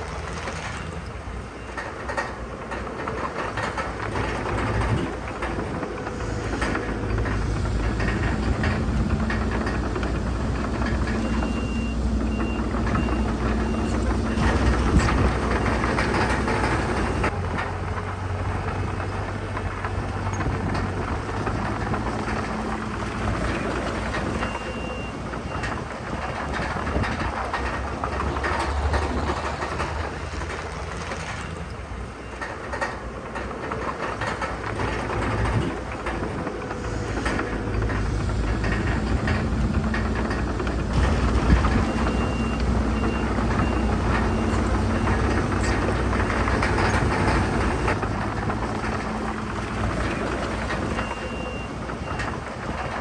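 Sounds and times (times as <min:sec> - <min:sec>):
diesel machinery engine drone: 0:00.0 - 0:53.0
machinery clanking and rattling: 0:00.0 - 0:53.0
reversing alarm beeps: 0:11.1 - 0:17.3, 0:24.4 - 0:25.8, 0:41.0 - 0:48.0, 0:51.0 - 0:52.3.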